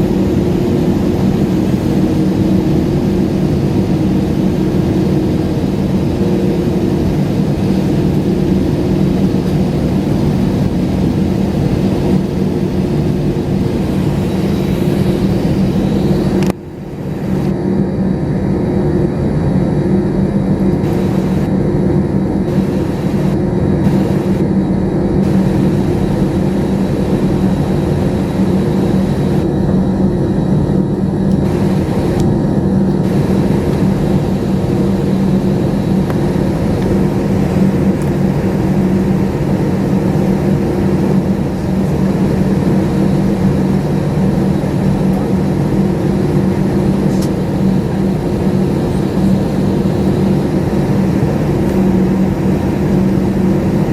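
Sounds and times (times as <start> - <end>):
jet airliner cabin engine drone: 0.0 - 53.9.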